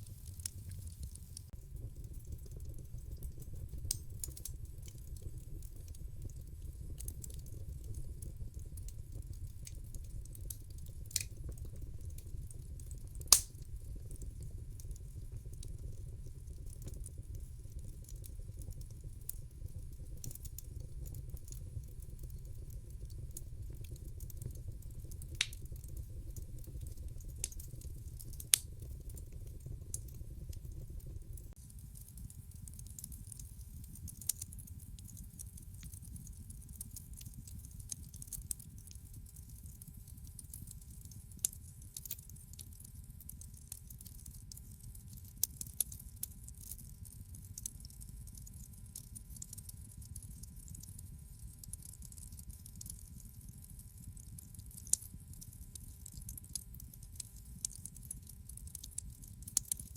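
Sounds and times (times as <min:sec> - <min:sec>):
sharp pops from fire: 0:00.0 - 0:44.7
wood fire crackling: 0:00.0 - 0:59.9.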